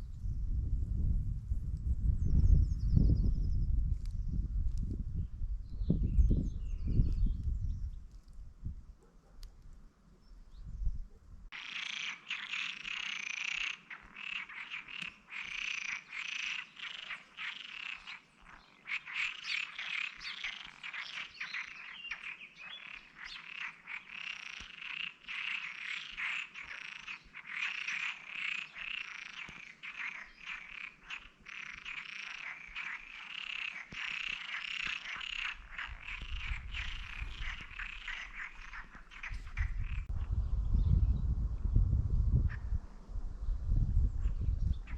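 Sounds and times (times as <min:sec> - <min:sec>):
chorus of frogs calling: 0:11.5 - 0:40.1.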